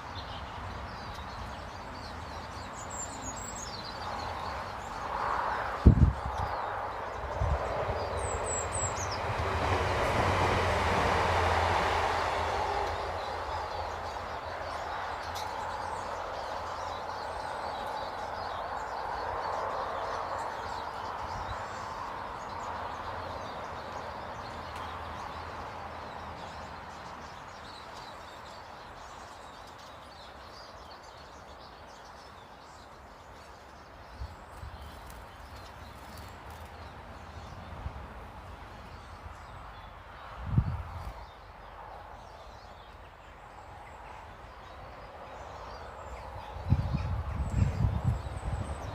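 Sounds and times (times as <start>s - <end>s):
bird chirp: 0.0s - 10.1s, 12.7s - 37.9s, 38.6s - 48.9s
broad rushing rumble: 5.0s - 13.7s.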